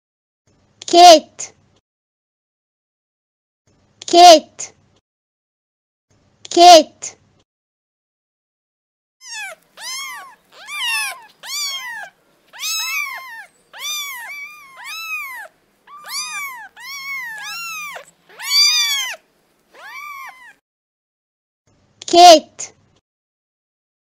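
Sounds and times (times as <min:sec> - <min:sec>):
cat meowing: 0:09.2 - 0:20.6.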